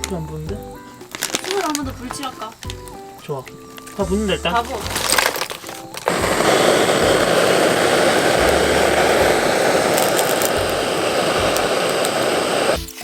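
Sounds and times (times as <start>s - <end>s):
loud rushing roar: 6.1s - 12.8s.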